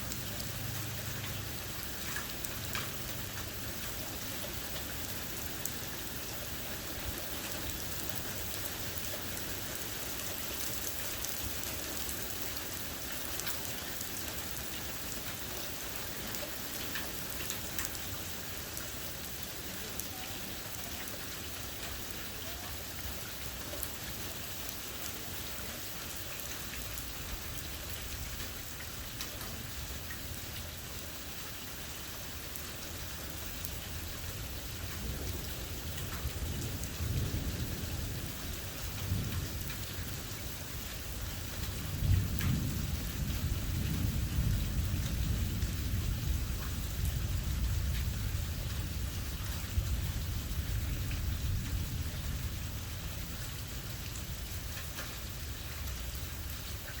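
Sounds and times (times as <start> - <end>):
steady rain: 0.0 - 57.0
thunder rumbling: 34.0 - 56.6.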